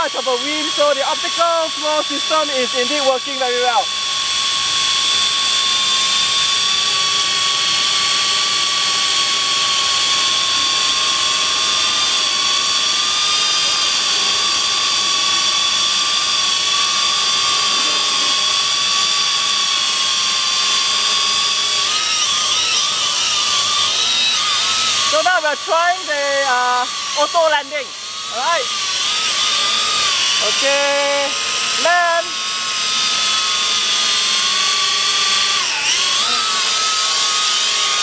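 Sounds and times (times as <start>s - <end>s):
quadcopter motors whining: 0.0s - 38.0s.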